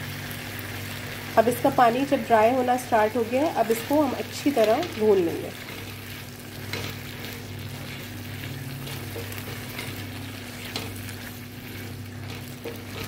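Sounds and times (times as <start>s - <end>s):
liver sizzling in a pan: 0.0s - 13.0s
spatula scraping a pan: 3.8s - 13.0s.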